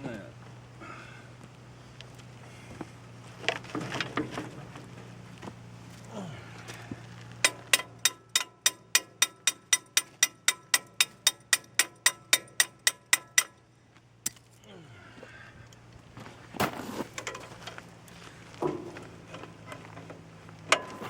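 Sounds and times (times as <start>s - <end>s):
low steady hum: 0.0s - 21.0s
sharp metallic clicks: 7.4s - 13.6s
heavy clunk: 18.6s - 21.0s.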